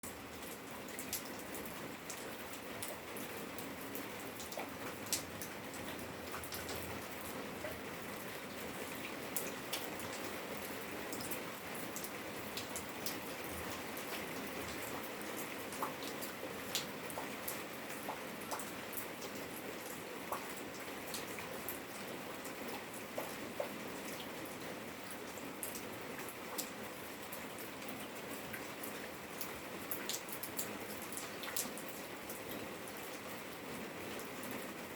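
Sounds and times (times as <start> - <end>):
steady rain: 0.0 - 34.9.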